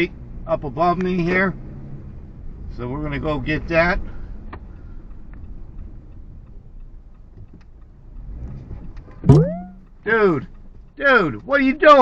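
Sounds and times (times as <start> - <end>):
car road and engine rumble: 0.0 - 12.0
loud steady low tone: 9.3 - 9.8.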